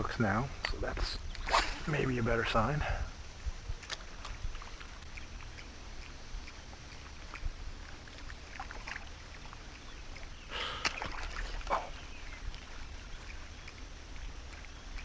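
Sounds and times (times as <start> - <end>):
wind rumble on microphone: 0.0 - 8.5.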